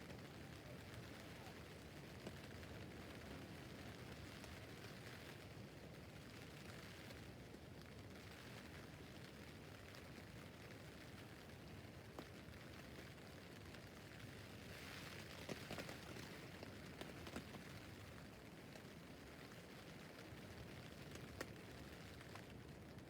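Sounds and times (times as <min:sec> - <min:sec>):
rain pattering on a tent: 0:00.0 - 0:23.0.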